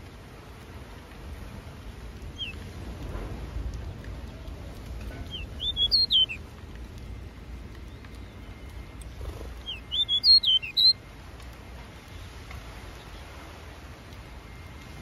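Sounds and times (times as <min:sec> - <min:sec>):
low background hum: 0:00.0 - 0:15.0
small bird chirping: 0:02.3 - 0:02.6, 0:05.2 - 0:06.4, 0:09.2 - 0:11.0.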